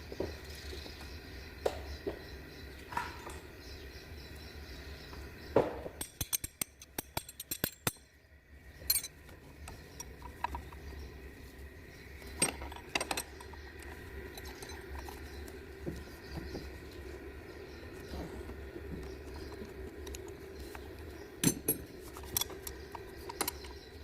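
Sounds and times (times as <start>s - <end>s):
steady low hum: 0.0s - 24.0s
metal tools clinking: 6.0s - 8.1s, 8.8s - 10.8s, 12.3s - 15.3s, 21.4s - 24.0s.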